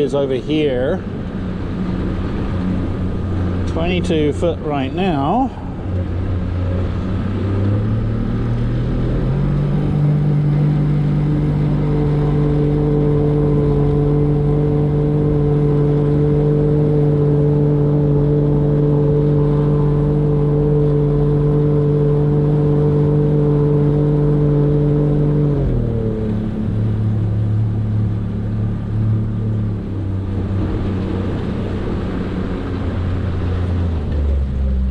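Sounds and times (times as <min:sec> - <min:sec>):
boat motor running: 0:00.0 - 0:34.9.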